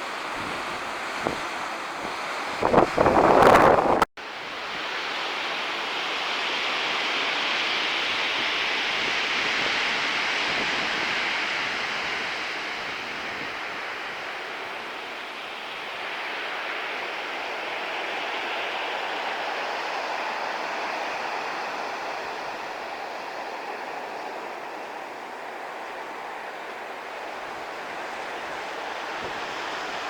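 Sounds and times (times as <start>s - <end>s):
sea surf breaking on shore: 0.0s - 30.0s
wind blast on microphone: 0.3s - 4.1s, 8.4s - 14.4s, 27.3s - 30.0s.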